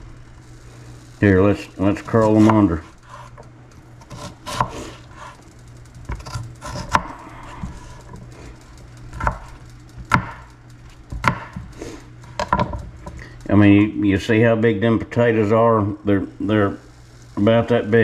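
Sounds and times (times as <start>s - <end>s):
knife chopping on cutting board: 4.0s - 4.8s, 9.2s - 9.5s, 10.1s - 10.4s, 11.1s - 11.7s.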